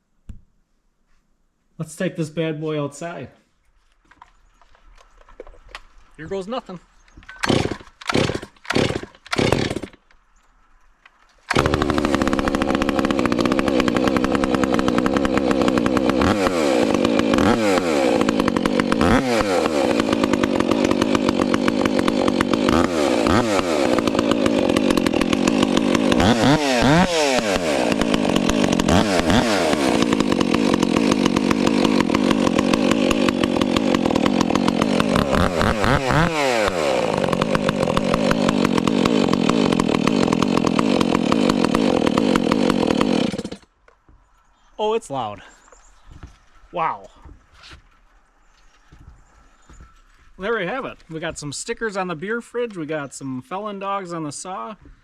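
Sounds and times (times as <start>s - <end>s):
chainsaw pull-starting and running: 7.2s - 10.3s, 11.0s - 44.2s.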